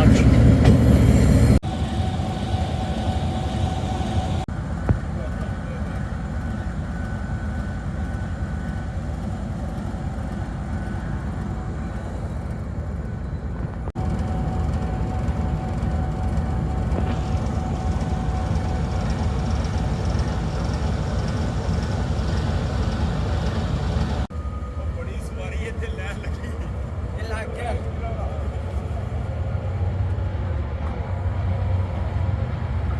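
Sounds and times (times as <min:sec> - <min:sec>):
train rumbling: 0:00.0 - 0:32.9
faint steady whine: 0:01.6 - 0:27.8.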